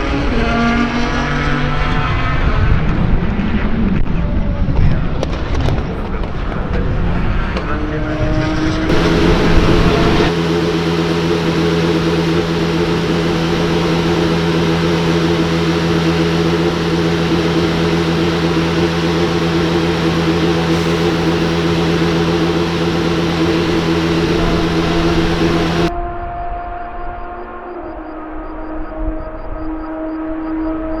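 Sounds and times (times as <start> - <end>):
race car engine high-revving: 0.0 - 4.0, 7.6 - 27.4
rush of noise: 8.9 - 26.0
steady mechanical hum: 8.9 - 26.0.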